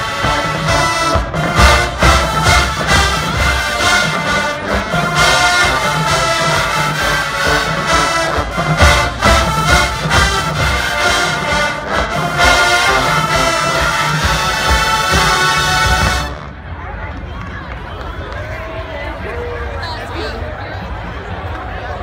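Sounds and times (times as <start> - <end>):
brass horns holding chords: 0.0 - 16.6.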